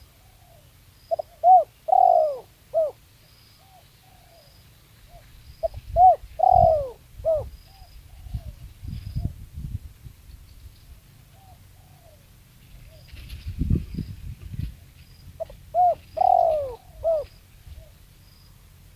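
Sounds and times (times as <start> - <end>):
dove cooing: 0.0 - 3.0, 5.1 - 8.6, 11.3 - 13.3, 15.4 - 18.0.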